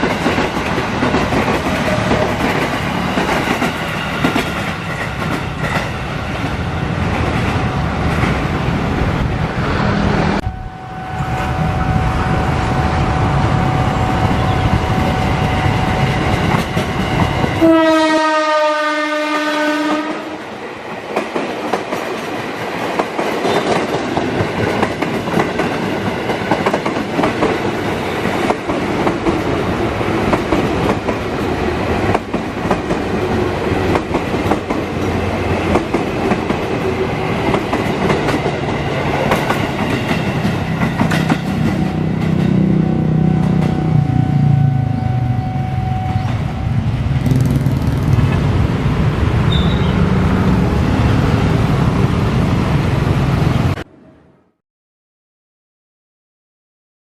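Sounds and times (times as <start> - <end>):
train horn: 17.5 - 20.4
train clattering over rail joints: 37.4 - 42.6.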